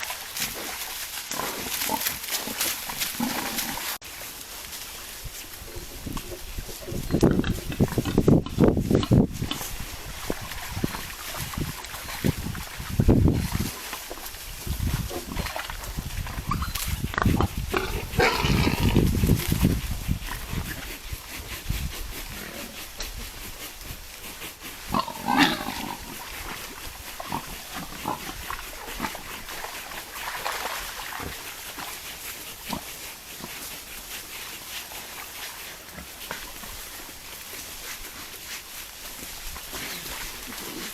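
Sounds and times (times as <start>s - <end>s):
wild boars grunting and squealing: 0.0s - 4.0s, 14.9s - 35.2s.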